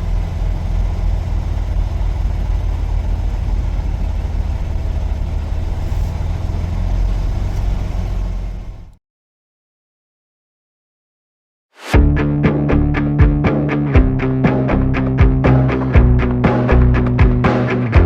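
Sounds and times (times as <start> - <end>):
truck diesel engine idling: 0.0 - 9.0.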